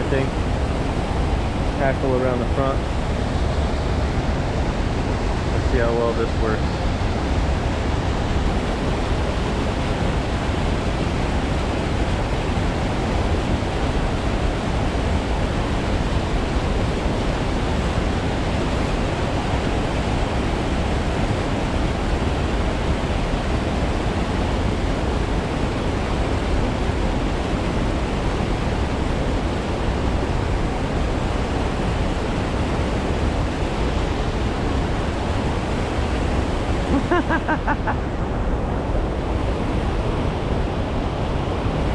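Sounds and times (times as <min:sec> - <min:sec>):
creek water flowing: 0:00.0 - 0:26.3.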